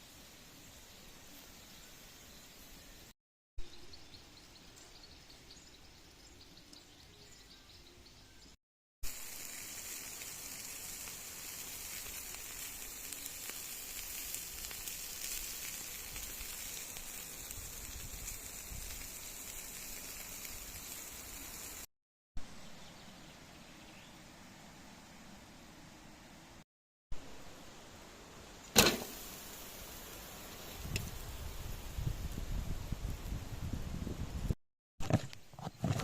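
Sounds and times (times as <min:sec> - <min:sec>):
food sizzling on a grill: 0:09.0 - 0:21.9, 0:28.8 - 0:34.3.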